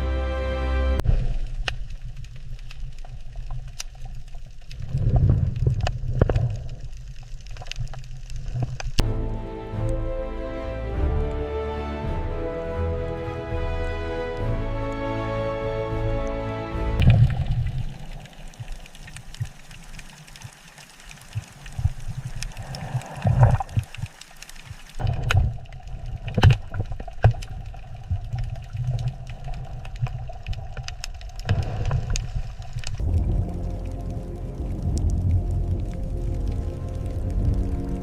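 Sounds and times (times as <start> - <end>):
background music: 0.0 - 1.0, 9.0 - 17.1, 33.0 - 38.0
clicks knocks and gurgles: 1.0 - 9.1, 17.0 - 37.9
low underwater rumble: 1.0 - 9.3, 15.9 - 24.2, 25.0 - 38.0.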